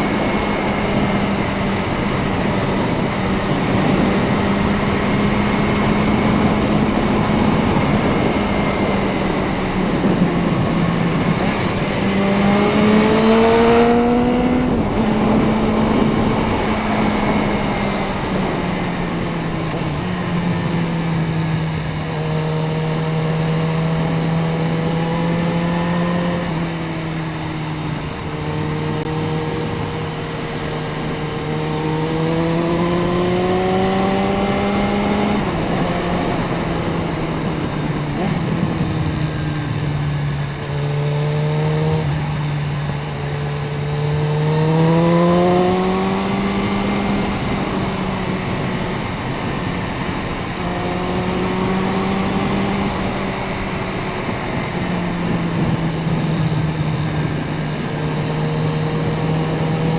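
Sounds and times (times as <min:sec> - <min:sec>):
motorcycle engine revving: 0:00.0 - 0:59.9
wind rush over camera: 0:44.9 - 0:59.9.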